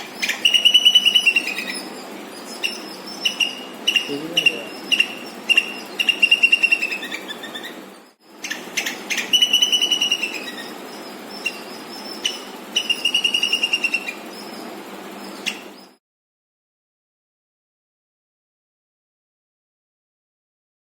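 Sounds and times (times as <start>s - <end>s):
squirrel chirping: 0.0s - 16.0s.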